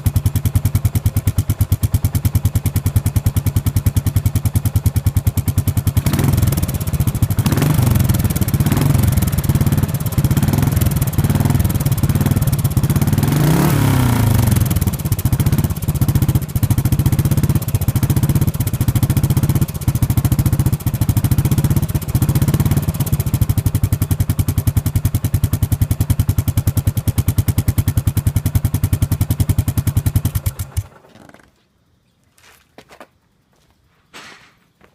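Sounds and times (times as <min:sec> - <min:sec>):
engine stopping abruptly: 0:00.0 - 0:31.3
motorcycle engine idling: 0:00.0 - 0:31.4.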